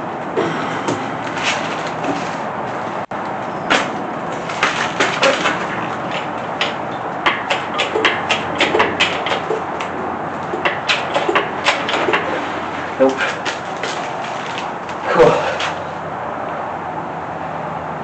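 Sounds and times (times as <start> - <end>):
metal hardware clicks and knocks: 5.4 - 12.4.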